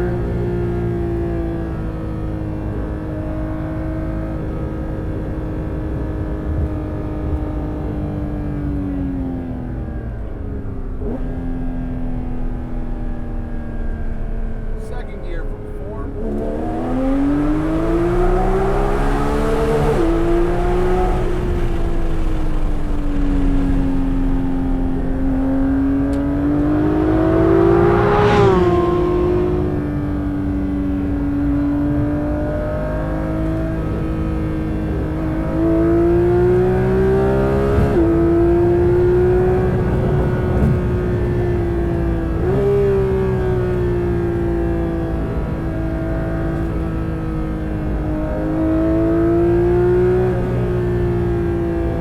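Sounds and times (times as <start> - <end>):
sports car engine accelerating: 0.0 - 52.0
exhaust crackle: 9.6 - 31.7, 33.0 - 48.0.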